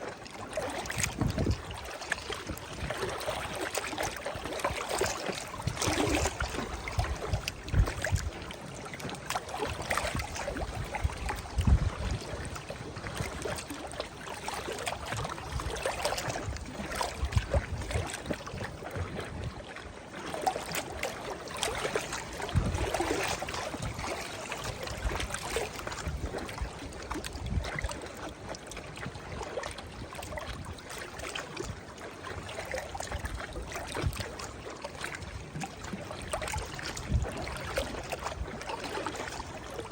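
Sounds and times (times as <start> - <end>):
river waves lapping and splashing: 0.0 - 39.9.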